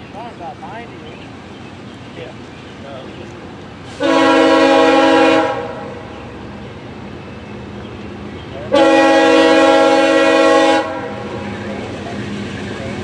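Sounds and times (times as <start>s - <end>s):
train rumble: 0.0s - 13.0s
locomotive air horn blasts: 3.9s - 6.1s, 8.7s - 11.4s.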